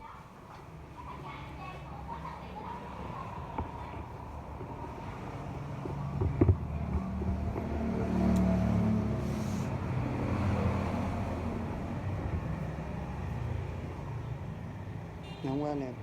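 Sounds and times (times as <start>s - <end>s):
vehicle engine running: 3.8s - 13.8s
sharp knocks: 5.8s - 8.4s.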